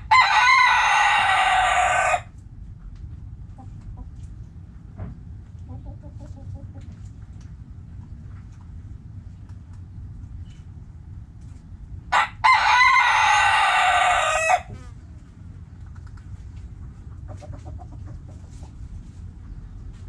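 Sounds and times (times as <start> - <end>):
rooster crowing: 0.0 - 2.3, 12.1 - 14.8
low background rumble: 0.0 - 20.0
hens clucking: 5.6 - 7.2, 16.8 - 19.1.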